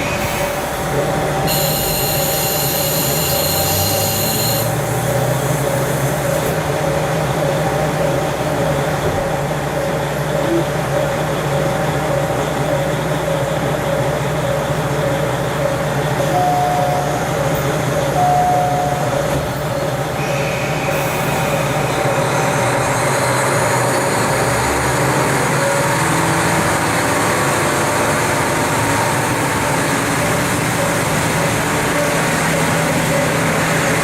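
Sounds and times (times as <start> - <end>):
diesel engine drone: 0.0 - 34.0
high squeal: 1.5 - 4.7.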